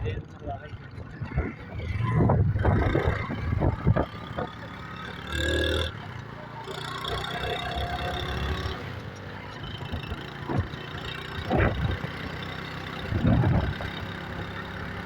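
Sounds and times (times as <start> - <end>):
wind buffeting on microphone: 0.0 - 4.6, 11.4 - 12.1, 13.1 - 13.9
motorcycle engine running: 0.0 - 15.0.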